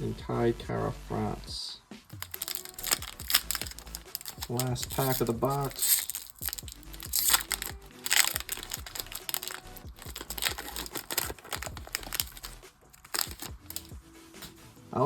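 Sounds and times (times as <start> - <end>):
faint background music: 0.0 - 15.0
foil wrapper tearing and crinkling: 2.1 - 14.0.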